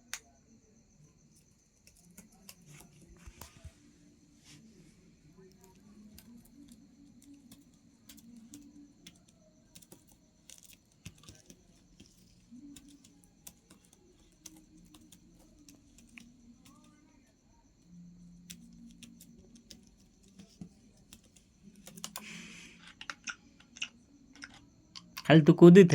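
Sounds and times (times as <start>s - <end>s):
faint low hum: 0.0s - 25.9s
small clicks and taps: 1.4s - 3.8s, 5.3s - 25.3s.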